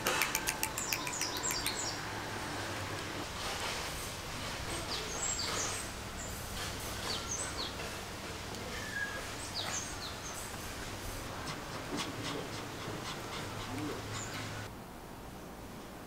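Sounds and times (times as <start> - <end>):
small birds chirping: 0.0 - 2.1, 4.7 - 7.9, 8.6 - 10.6, 12.0 - 14.7
outdoor hiss: 0.0 - 16.0.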